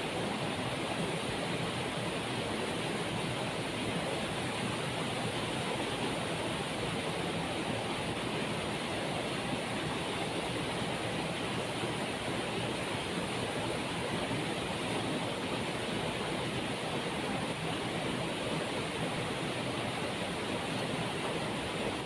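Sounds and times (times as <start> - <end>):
waterfall roaring: 0.0 - 22.0.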